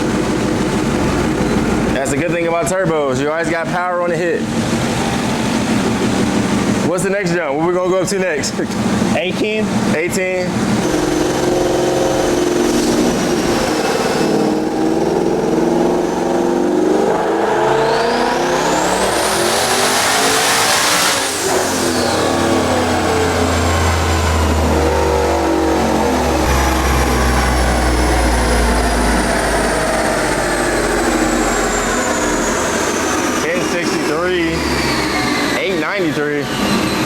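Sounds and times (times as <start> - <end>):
deep low engine rumble: 0.0 - 9.9, 10.5 - 37.0
engine full-throttle pull: 0.0 - 37.0
turbo whistle: 10.8 - 23.9.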